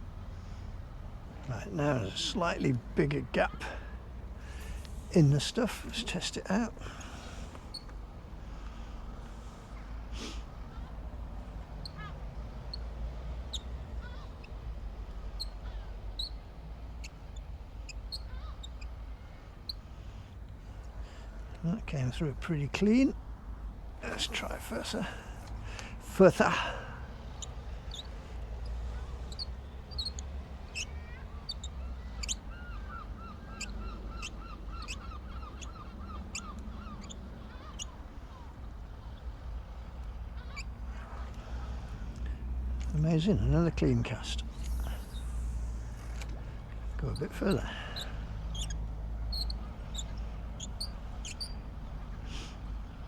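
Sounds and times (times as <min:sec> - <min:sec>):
birds chirping: 0:00.0 - 0:53.0
short high bird chirps: 0:44.3 - 0:46.3.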